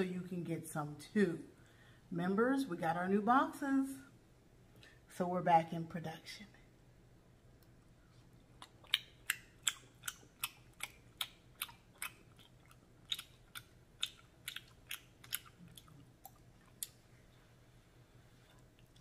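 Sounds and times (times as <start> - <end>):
wet mouth clicks from chewing: 8.4 - 17.0, 18.5 - 19.0.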